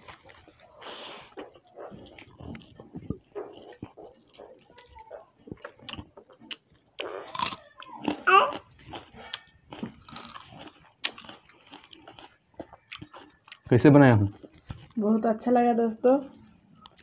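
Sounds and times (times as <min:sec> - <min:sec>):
chewing and biting noodles: 0:00.0 - 0:15.0, 0:16.3 - 0:17.0
crunchy bites of raw onion: 0:05.6 - 0:14.9.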